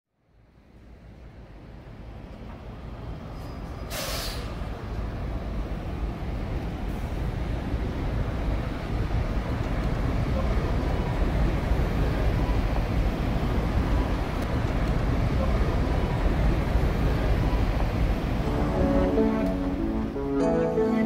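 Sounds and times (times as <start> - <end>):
train rumble: 0.6 - 21.0
air brake hiss: 3.4 - 4.7.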